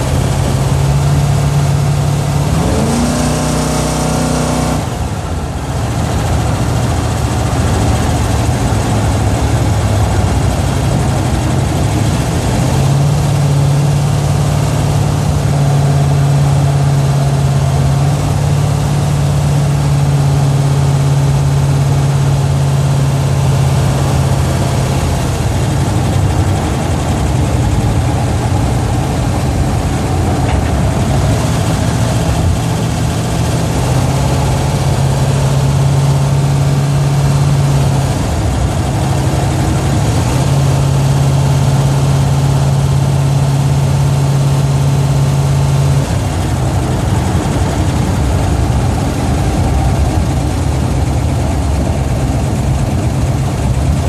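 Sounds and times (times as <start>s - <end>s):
car engine droning: 0.0s - 54.0s.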